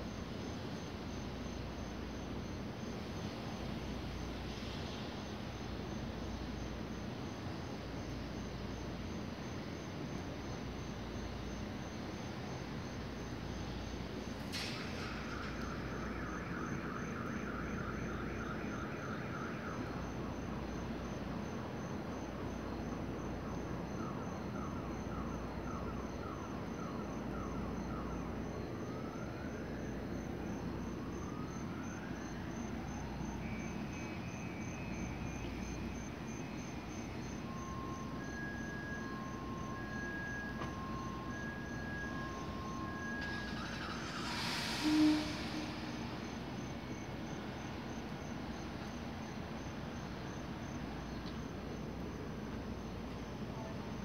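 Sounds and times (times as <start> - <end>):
crickets trilling: 0.0 - 54.0
train equipment humming: 32.0 - 54.0.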